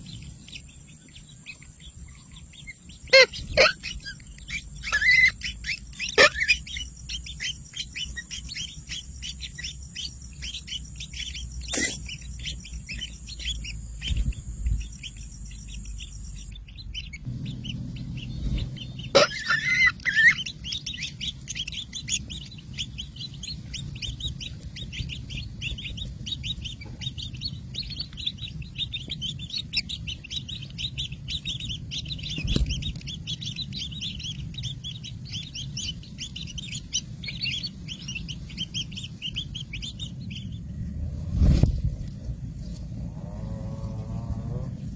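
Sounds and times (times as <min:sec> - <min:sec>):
flock of small birds chirping: 0:00.0 - 0:44.9
steady high-pitched tone: 0:03.8 - 0:17.9.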